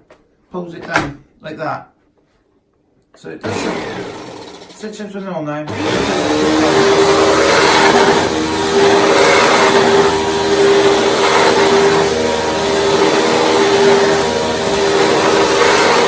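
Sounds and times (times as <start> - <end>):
vacuum cleaner motor whine: 3.4 - 4.8, 5.7 - 16.0
vacuum suction rushing: 5.7 - 16.0.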